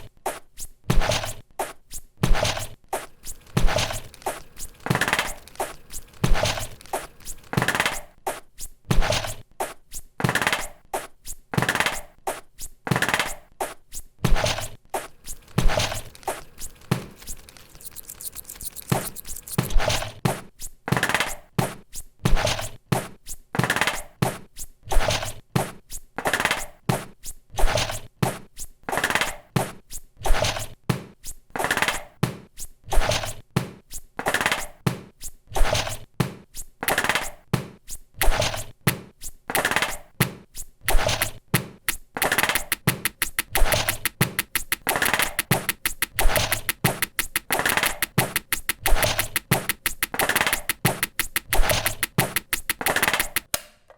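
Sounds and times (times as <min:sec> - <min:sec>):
quick clicks: 0:03.1 - 0:08.0, 0:15.0 - 0:20.0, 0:40.9 - 0:53.6
sharp noisy percussive hits: 0:40.9 - 0:53.5
thumps and knocks: 0:40.9 - 0:53.5.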